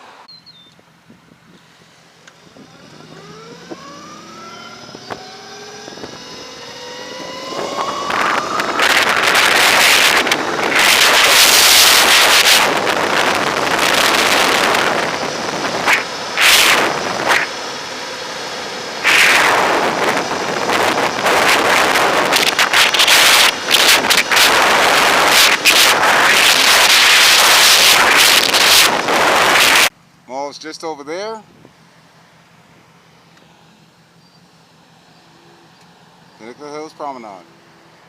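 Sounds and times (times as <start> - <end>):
electric motor whine: 2.0 - 29.9
wind buffeting on microphone: 4.8 - 17.5, 19.0 - 29.9.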